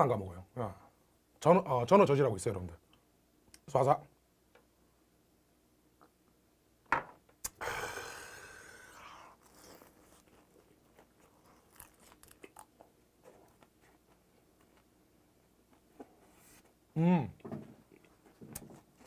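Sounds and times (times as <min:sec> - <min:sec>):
breathy exhale: 0:07.6 - 0:09.4
crunching and chewing: 0:09.3 - 0:13.8.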